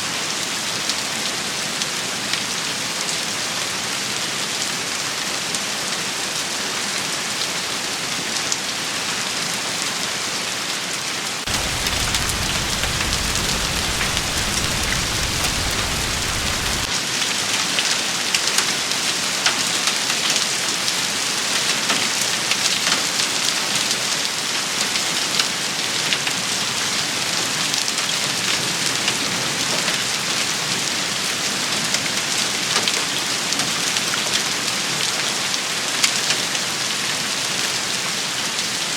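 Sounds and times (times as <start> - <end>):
low rumble: 11.5 - 16.9
rain on hard surfaces: 11.5 - 16.9.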